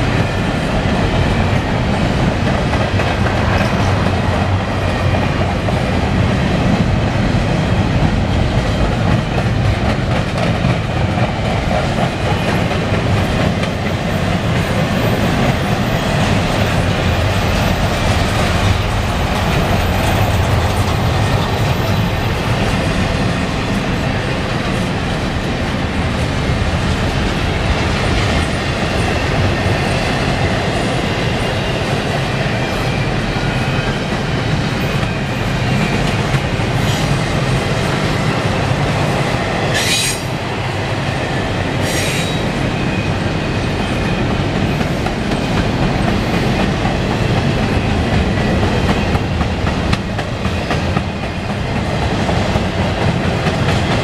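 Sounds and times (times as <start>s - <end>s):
freight train wheels rumbling: 0.0s - 54.0s
sharp high-pitched screech: 39.8s - 40.3s.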